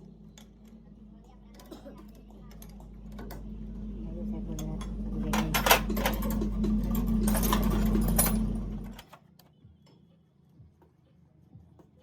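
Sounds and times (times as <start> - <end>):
workshop machine humming and rattling: 0.0 - 9.3.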